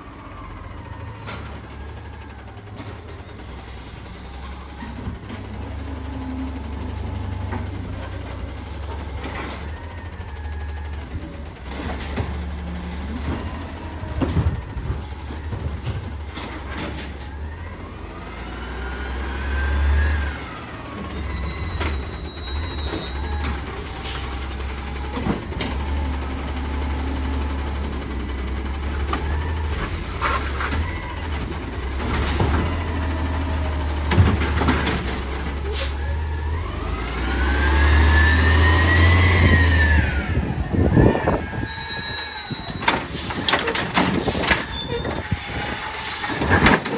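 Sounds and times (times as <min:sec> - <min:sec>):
garbage truck engine running: 0:00.0 - 0:46.9
hydraulics whining: 0:00.0 - 0:46.9
knocks and clanks: 0:11.0 - 0:17.4, 0:28.8 - 0:36.3, 0:42.7 - 0:46.9.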